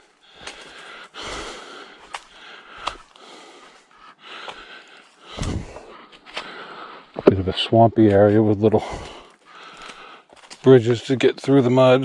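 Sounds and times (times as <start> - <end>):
person breathing hard: 0.0 - 7.2, 8.8 - 10.5
footsteps snapping twigs: 0.0 - 7.3, 8.9 - 10.8.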